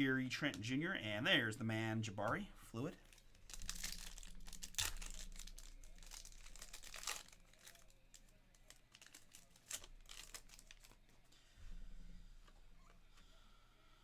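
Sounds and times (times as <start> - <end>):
wrapper crinkling and tearing: 3.0 - 11.1.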